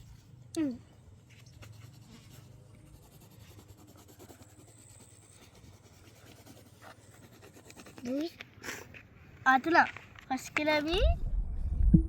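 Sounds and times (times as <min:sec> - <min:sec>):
pen scratching on paper: 0:01.2 - 0:08.9
low hum: 0:11.0 - 0:12.0.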